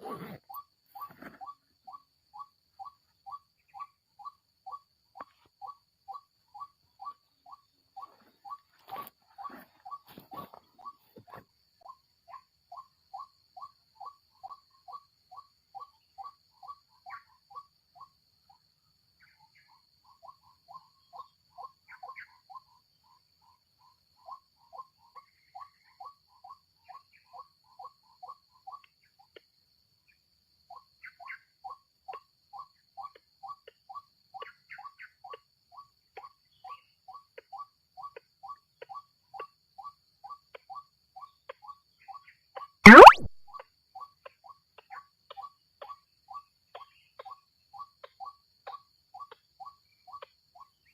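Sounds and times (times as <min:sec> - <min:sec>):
waterhen calling: 0:42.9 - 0:43.3.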